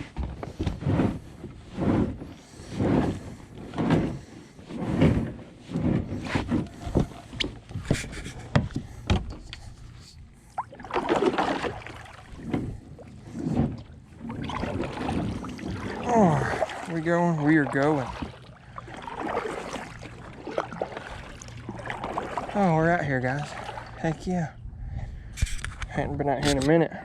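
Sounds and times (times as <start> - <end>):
water sloshing around kayak: 0.0 - 26.9
knocks against hull: 4.9 - 9.5, 10.8 - 16.0.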